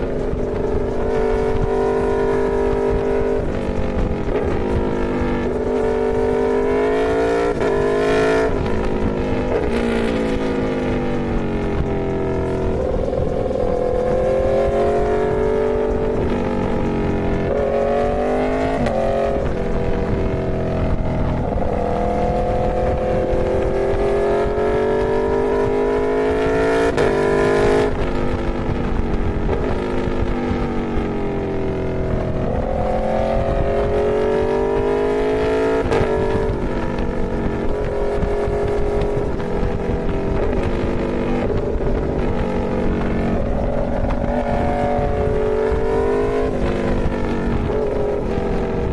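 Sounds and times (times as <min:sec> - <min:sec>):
motorcycle engine accelerating: 0:00.0 - 0:48.9
wind noise: 0:00.0 - 0:48.9.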